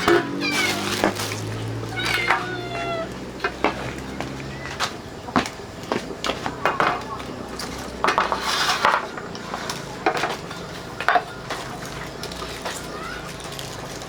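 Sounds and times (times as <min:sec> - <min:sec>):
utensil scraping: 0:00.0 - 0:03.9, 0:08.1 - 0:10.4
kitchenware clinking: 0:00.0 - 0:04.1.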